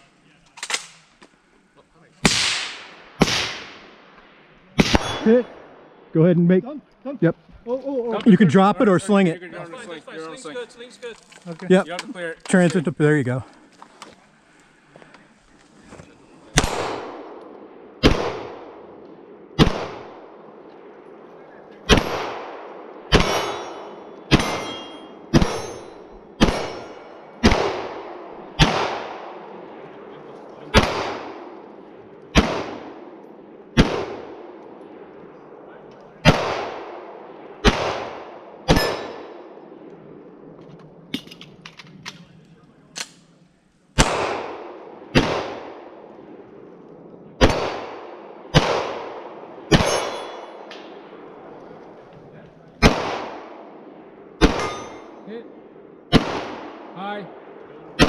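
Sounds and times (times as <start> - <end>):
pistol shots hitting steel targets: 2.2 - 3.8, 4.8 - 5.5, 16.6 - 17.2, 21.9 - 29.3, 37.6 - 39.4, 47.4 - 51.0, 54.4 - 55.2.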